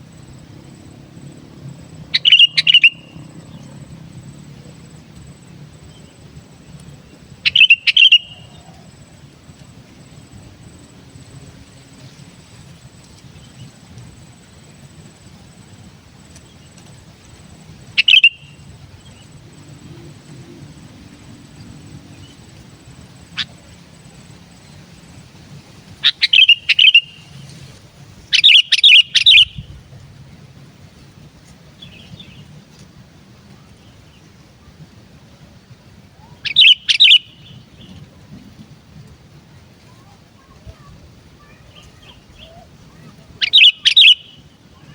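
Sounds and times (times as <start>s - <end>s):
bird chirping: 2.0s - 6.3s, 7.0s - 12.6s, 16.3s - 24.8s, 26.0s - 27.6s, 28.3s - 29.7s, 36.2s - 38.0s, 40.4s - 44.9s.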